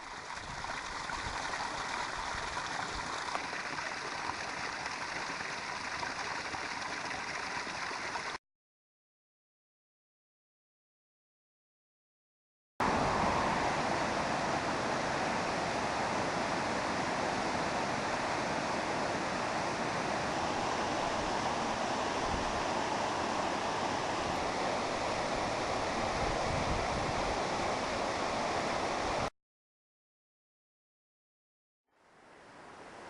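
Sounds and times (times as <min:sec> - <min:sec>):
rushing water: 0:00.0 - 0:08.4, 0:12.8 - 0:29.3, 0:32.0 - 0:33.0.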